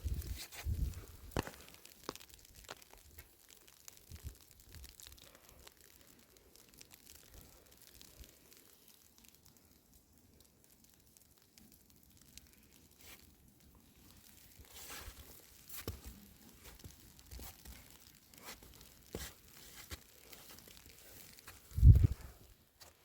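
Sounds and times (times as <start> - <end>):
crackling and rustling handling noises: 0.0 - 9.7, 11.2 - 23.0.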